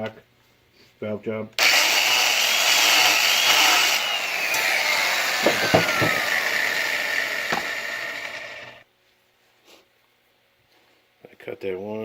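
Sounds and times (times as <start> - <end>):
valve seat grinder whine: 1.6 - 8.8.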